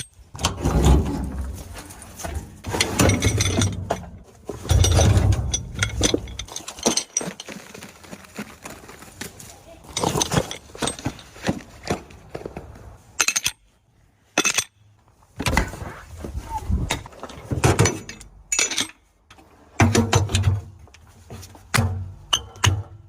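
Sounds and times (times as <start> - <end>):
metal parts clinking and knocking: 0.0 - 7.9, 9.8 - 12.2, 13.2 - 13.7, 14.3 - 14.9, 16.8 - 19.1.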